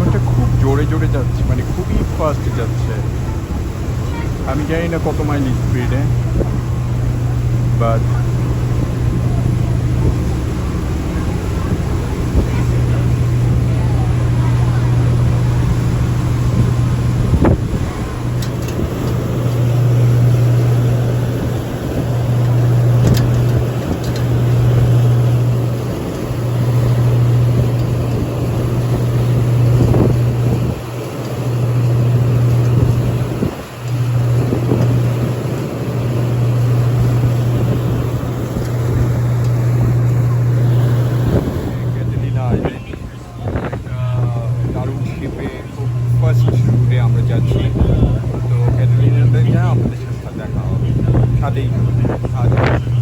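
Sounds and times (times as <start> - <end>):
ferry engine hum: 0.0 - 53.0
rush of wind and water: 0.0 - 53.0.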